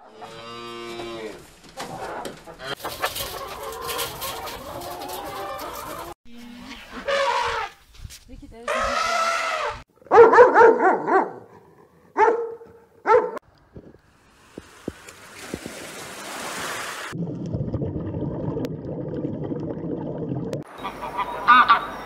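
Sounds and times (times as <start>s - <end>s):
small dog barking: 10.1s - 11.5s, 12.2s - 13.4s.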